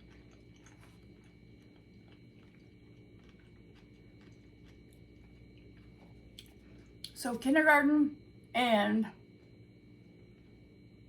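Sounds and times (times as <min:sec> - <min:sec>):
chewing clicks: 0:00.0 - 0:07.2
faint electrical hum: 0:00.0 - 0:11.0.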